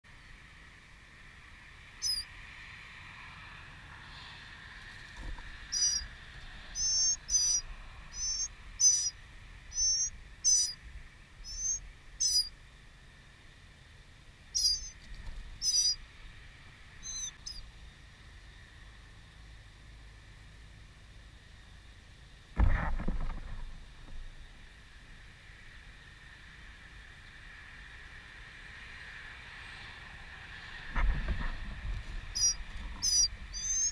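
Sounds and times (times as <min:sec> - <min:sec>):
songbird warbling call notes: 0:02.0 - 0:02.3, 0:05.6 - 0:10.8, 0:11.4 - 0:12.6, 0:14.5 - 0:15.0, 0:15.6 - 0:16.0, 0:17.0 - 0:17.7, 0:32.3 - 0:33.9.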